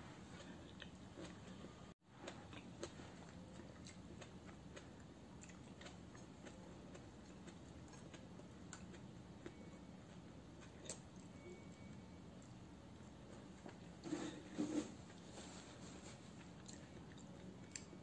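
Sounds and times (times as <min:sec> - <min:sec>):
chewing clicks and smacks: 0:02.2 - 0:09.7, 0:16.4 - 0:18.0.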